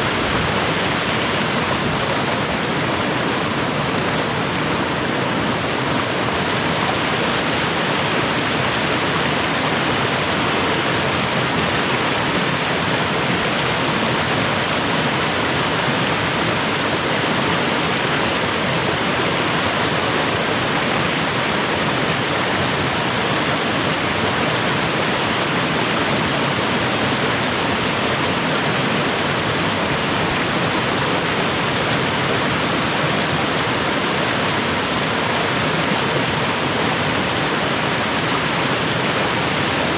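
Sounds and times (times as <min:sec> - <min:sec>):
creek and waterfalls rushing: 0:00.0 - 0:39.9.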